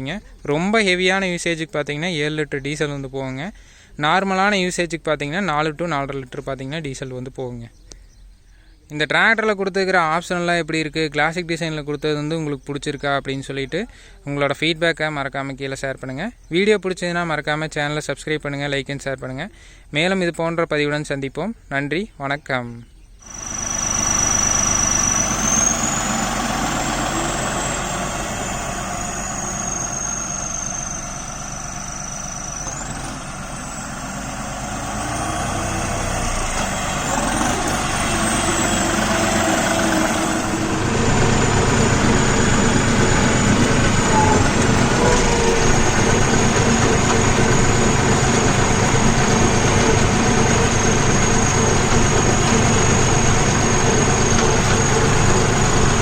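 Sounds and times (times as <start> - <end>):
high whine: 23.2 - 56.0
tractor diesel engine running: 23.2 - 56.0.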